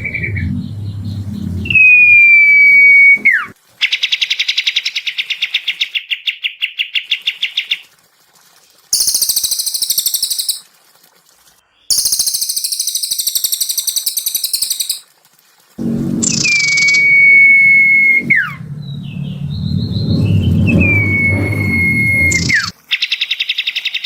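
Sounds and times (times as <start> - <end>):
steady whistle-like tone: 0.0 - 3.5, 15.8 - 22.7
high buzzy bird chatter: 9.0 - 10.6, 11.9 - 15.0
songbird trill: 9.0 - 10.6, 11.9 - 15.0.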